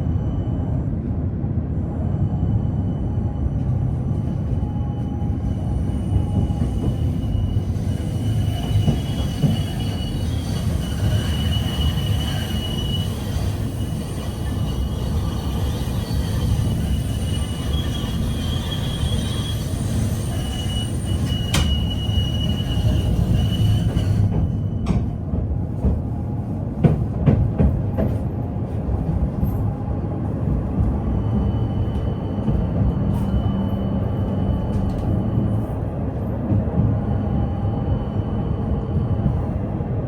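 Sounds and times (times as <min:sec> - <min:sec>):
tram rolling rumble: 0:00.0 - 0:40.0
high wheel squeal: 0:04.5 - 0:25.1, 0:31.1 - 0:35.8.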